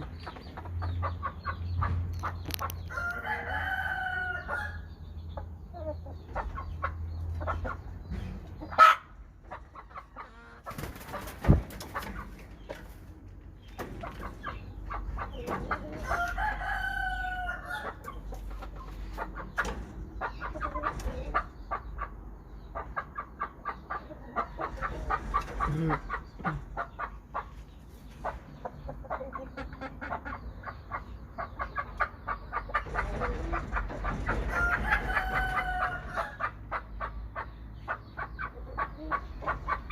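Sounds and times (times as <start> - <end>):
chicken clucking: 0.0 - 39.9
rooster crowing: 2.9 - 4.9, 16.1 - 17.9.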